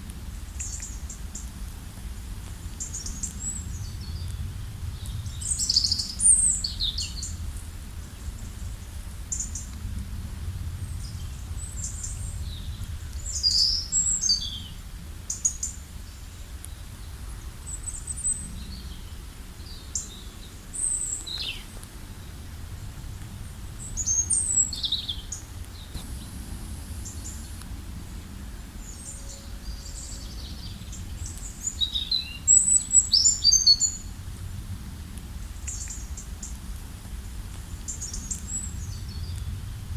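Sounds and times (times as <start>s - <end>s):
small songbirds chirping: 0.4s - 1.6s, 2.7s - 9.8s, 10.5s - 34.2s, 35.3s - 39.6s
low background rumble: 17.0s - 31.8s.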